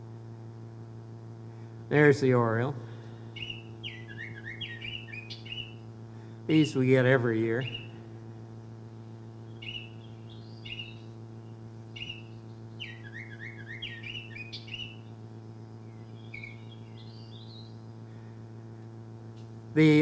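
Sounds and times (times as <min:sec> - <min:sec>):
steady electrical hum: 0:00.0 - 0:20.0
recorded bird song over a speaker: 0:03.3 - 0:05.9, 0:06.5 - 0:18.0.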